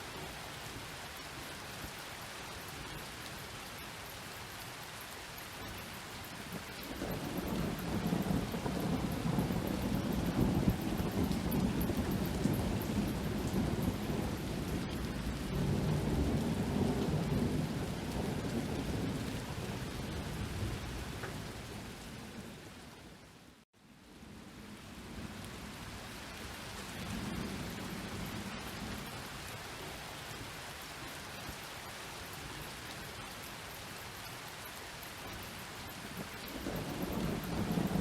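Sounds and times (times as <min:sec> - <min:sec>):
steady rain: 0:00.0 - 0:38.0
rolling thunder: 0:07.0 - 0:22.4, 0:36.5 - 0:38.0.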